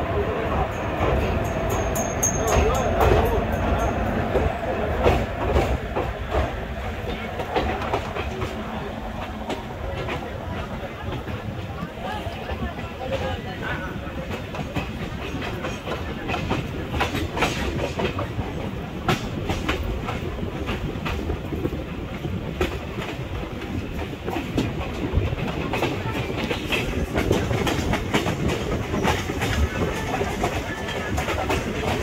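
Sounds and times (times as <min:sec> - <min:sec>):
train coaches rumbling: 0:00.0 - 0:32.0
wheels clacking over rail joints: 0:00.5 - 0:32.0.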